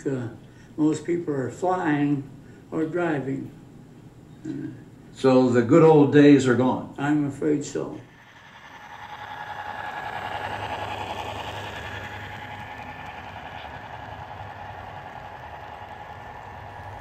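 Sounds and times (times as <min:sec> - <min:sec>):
train rumbling past: 0:08.0 - 0:17.0.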